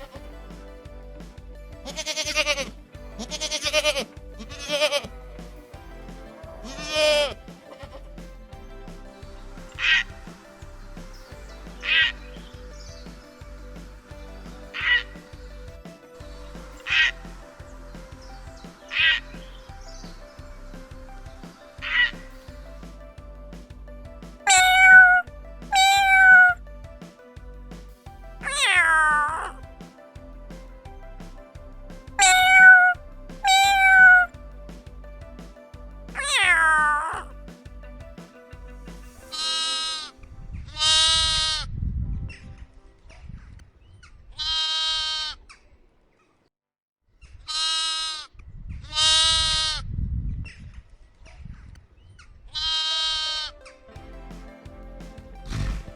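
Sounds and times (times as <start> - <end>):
background music with beat: 0.0 - 41.4, 53.8 - 55.9
farm animal bleating: 1.8 - 5.1, 44.4 - 45.4, 47.5 - 48.2, 52.6 - 53.5.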